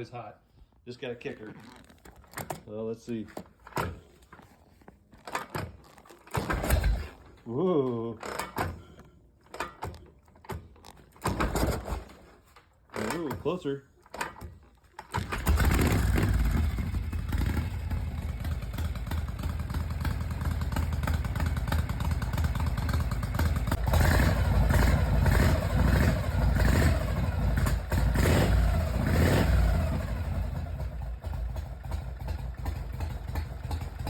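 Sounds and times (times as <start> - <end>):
motorcycle engine idling lumpily: 0.7 - 34.0
motorcycle throttle blips: 15.2 - 34.0.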